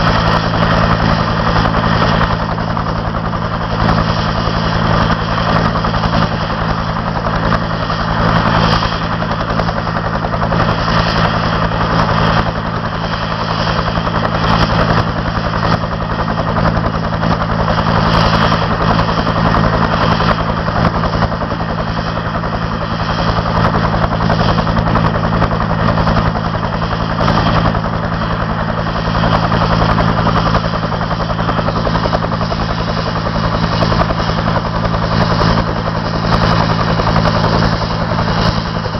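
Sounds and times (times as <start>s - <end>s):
helicopter engine and rotor drone: 0.0s - 38.9s.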